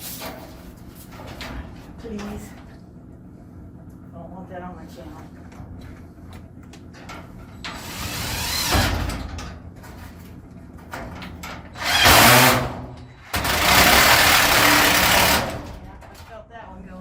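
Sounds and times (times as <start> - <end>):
power drill driving screws into metal: 11.7 - 12.8, 13.4 - 15.6.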